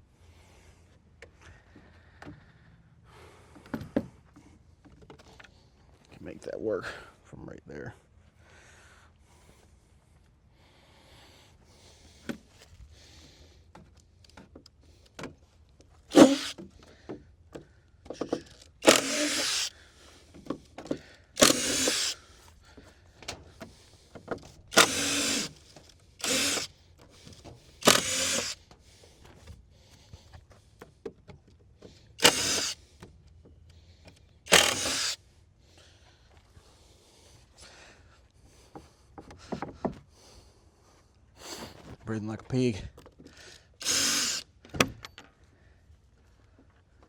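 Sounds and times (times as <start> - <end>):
power drill running in bursts: 16.1 - 16.6, 18.8 - 19.7, 21.4 - 22.2, 24.7 - 26.7, 27.8 - 28.6, 32.2 - 32.8, 34.5 - 35.2, 43.8 - 44.5.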